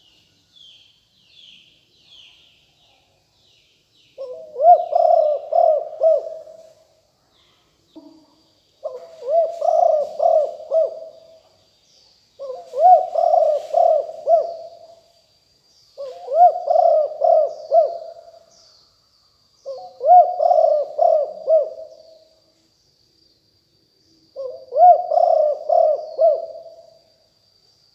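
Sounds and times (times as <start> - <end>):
dove cooing: 4.2 - 6.7, 8.8 - 11.4, 12.4 - 14.9, 16.0 - 18.4, 19.7 - 22.2, 24.4 - 26.8.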